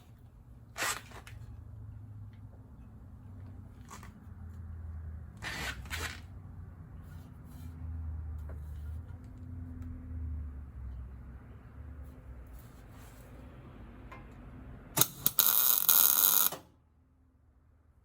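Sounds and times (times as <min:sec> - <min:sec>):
clatters and scrapes: 0:03.7 - 0:04.3, 0:05.4 - 0:06.4.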